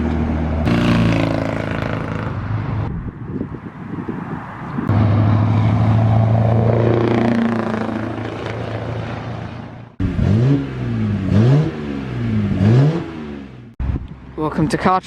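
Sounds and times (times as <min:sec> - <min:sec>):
lorry engine rising and falling: 0:04.8 - 0:14.0.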